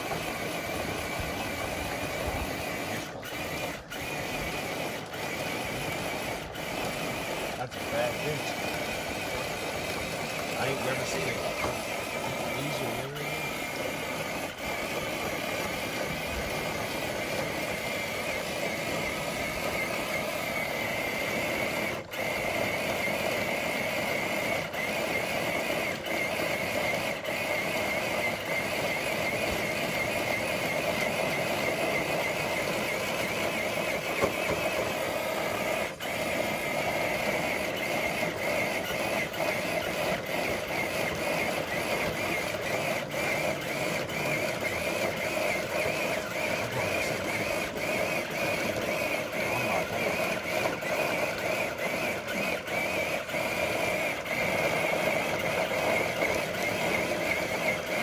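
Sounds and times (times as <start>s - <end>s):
electric motor whining: 0.0s - 58.0s.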